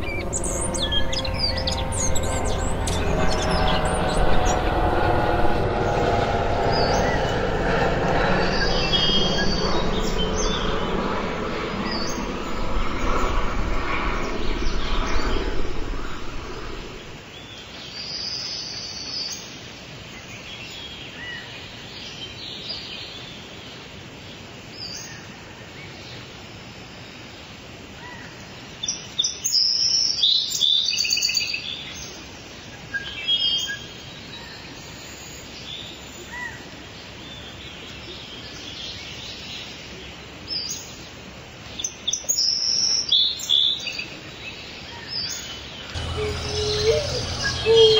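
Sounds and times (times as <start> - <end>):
low rumble with faint hum: 0.0 - 17.2, 45.9 - 47.9
songbirds chirping: 44.4 - 47.9.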